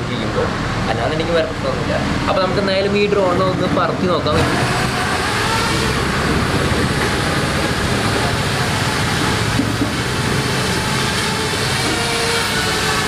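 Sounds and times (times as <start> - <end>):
quadcopter propellers whirring: 0.0 - 13.0.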